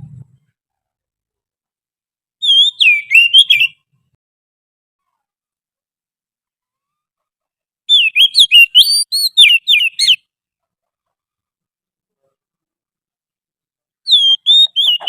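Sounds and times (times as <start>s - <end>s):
bird whistling song: 2.4s - 3.9s, 7.9s - 10.3s, 14.1s - 15.0s.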